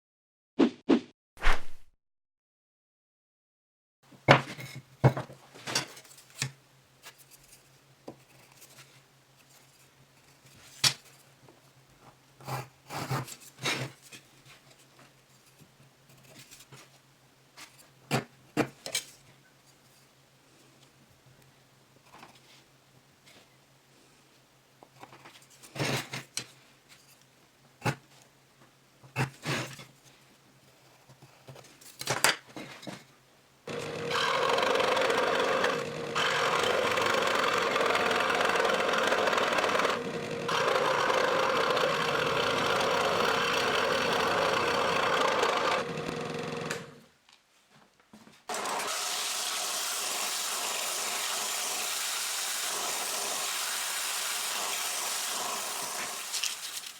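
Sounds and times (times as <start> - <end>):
power tool cutting wood: 33.7 - 47.0, 48.5 - 56.9.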